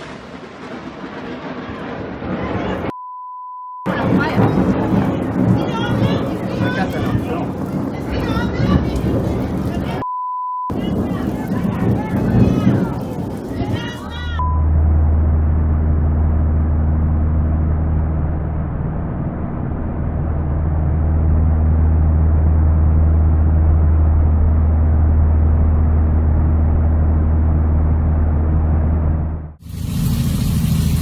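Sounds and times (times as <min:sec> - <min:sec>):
low engine drone: 0:10.7 - 0:31.0.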